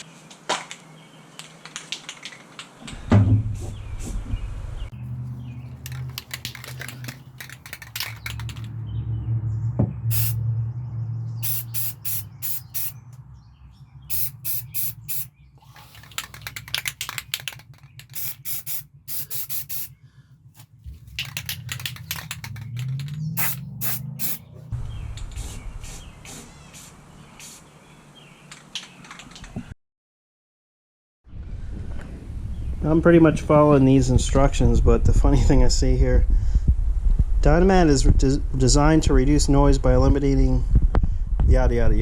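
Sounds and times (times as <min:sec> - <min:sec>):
spray paint hissing: 0:05.2 - 0:08.7, 0:10.1 - 0:10.4, 0:11.4 - 0:13.0, 0:14.1 - 0:19.9, 0:20.9 - 0:24.5, 0:25.4 - 0:27.6.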